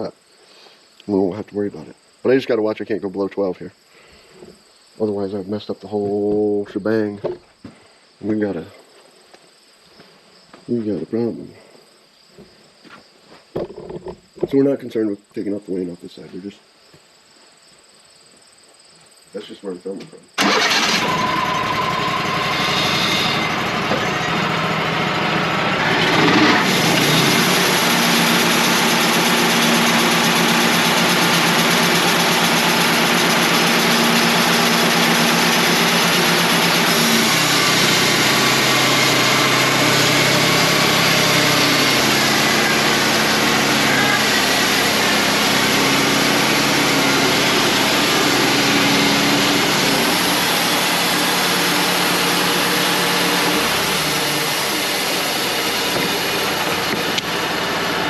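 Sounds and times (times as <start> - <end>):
sawmill engine running: 20.4 - 58.0
band blade sawing log: 22.6 - 24.0, 26.1 - 58.0.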